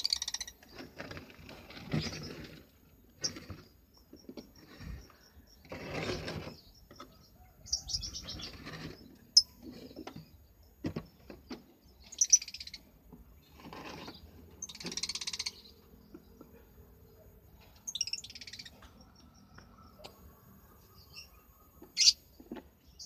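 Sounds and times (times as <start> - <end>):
birds chattering: 0.0 - 23.0.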